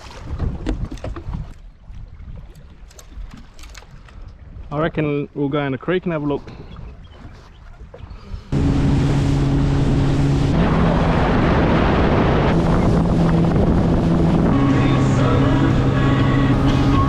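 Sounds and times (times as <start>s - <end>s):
wind buffeting microphone: 6.4s - 17.0s
outboard motor running: 6.7s - 17.0s.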